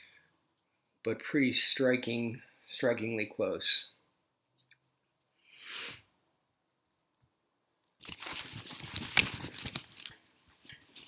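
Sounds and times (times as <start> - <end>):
small parts clattering and rustling: 7.9 - 11.0.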